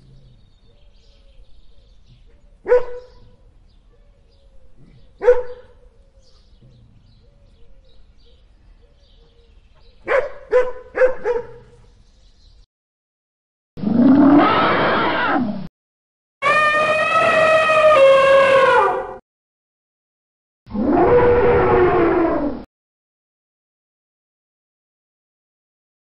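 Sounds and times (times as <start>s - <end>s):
puppy barking: 2.6s - 3.3s, 5.2s - 5.8s, 10.0s - 11.8s.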